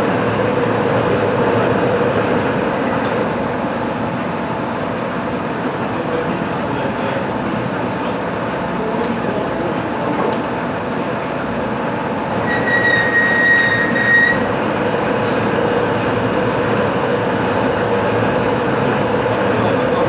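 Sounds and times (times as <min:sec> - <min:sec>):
high squeal: 0:12.4 - 0:14.5.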